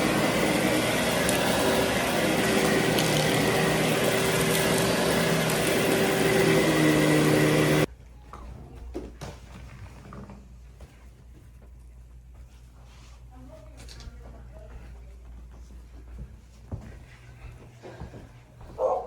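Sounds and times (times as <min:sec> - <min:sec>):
vacuum cleaner running: 0:00.0 - 0:07.9.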